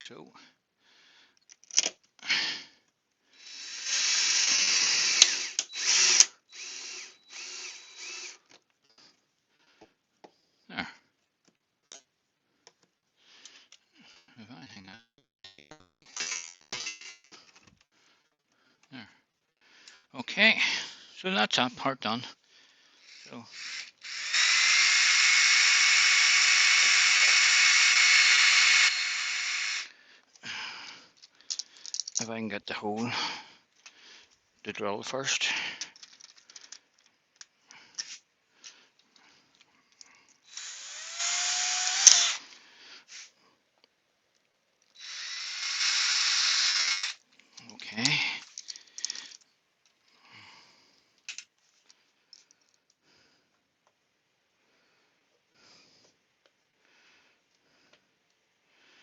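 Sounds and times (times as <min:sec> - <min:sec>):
electric drill running: 0:03.4 - 0:08.4, 0:23.0 - 0:29.9, 0:40.5 - 0:42.5, 0:45.0 - 0:47.2
clicks and taps of small tools: 0:31.2 - 0:32.3, 0:47.6 - 0:50.0, 0:51.2 - 0:53.0.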